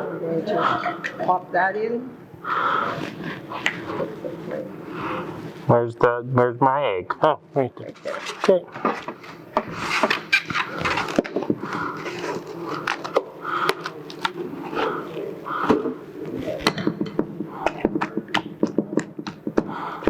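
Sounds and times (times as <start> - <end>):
eggs cracking against bowl: 9.6 - 20.0.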